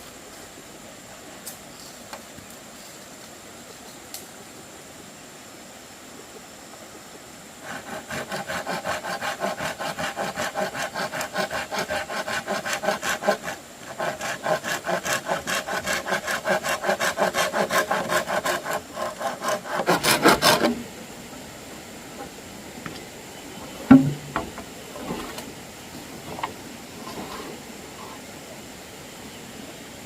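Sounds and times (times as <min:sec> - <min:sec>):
hand saw cutting bamboo: 0:07.6 - 0:20.8, 0:23.9 - 0:24.4.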